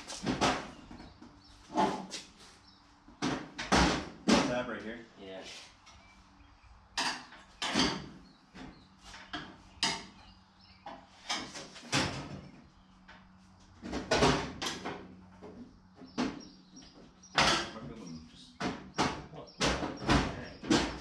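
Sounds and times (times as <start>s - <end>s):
metal panels clanking and scraping: 10.9s - 12.6s, 17.3s - 21.0s.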